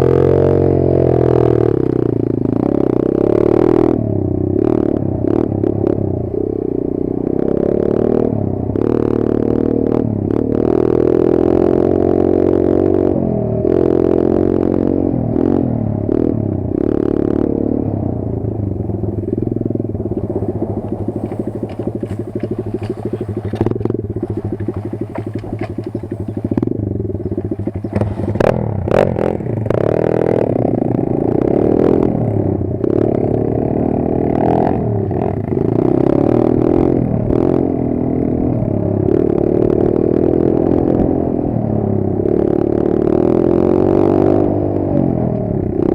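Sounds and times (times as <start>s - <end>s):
pit bike engine revving: 0.0s - 45.9s
clatter and knocks: 20.2s - 26.6s.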